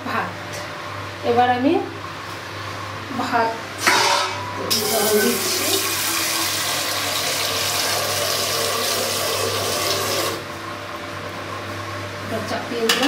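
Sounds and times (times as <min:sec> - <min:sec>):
tap water running into metal pot: 0:04.7 - 0:10.4.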